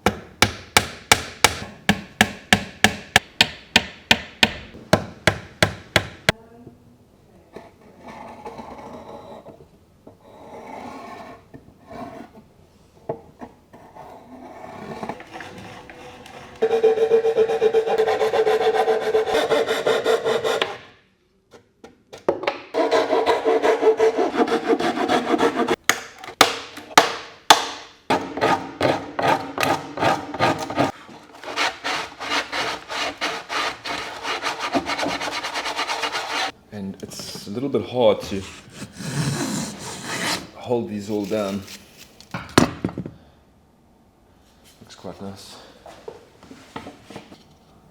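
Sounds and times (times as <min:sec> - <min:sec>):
hand tool rasping wood: 0:14.8 - 0:20.8, 0:22.8 - 0:25.8, 0:28.1 - 0:36.6, 0:38.2 - 0:40.5.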